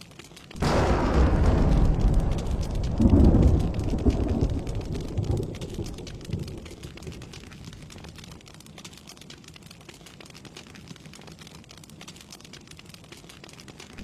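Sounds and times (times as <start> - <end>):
steady rain: 0.0 - 14.0
thunder clap and rumble: 0.6 - 8.3.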